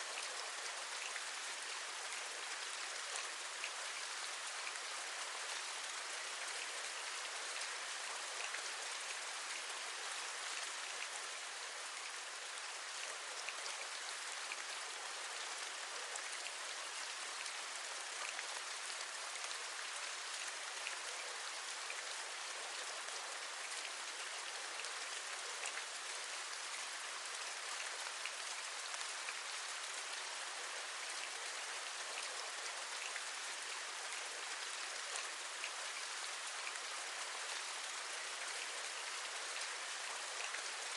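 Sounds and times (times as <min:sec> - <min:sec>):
rain on a window: 0:00.0 - 0:40.9.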